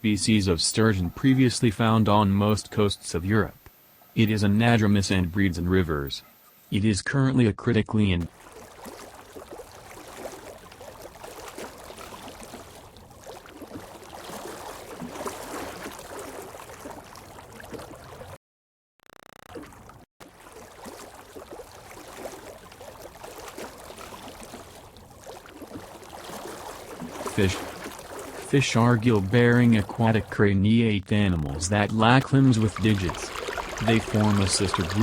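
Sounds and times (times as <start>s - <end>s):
gurgling running water: 20.3s - 30.2s, 31.5s - 35.0s.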